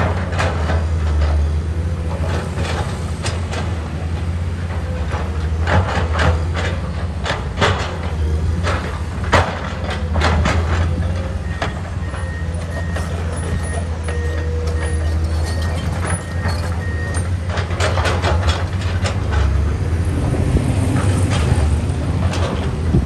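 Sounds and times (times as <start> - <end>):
metallic clanks and knocks: 12.2 - 18.3.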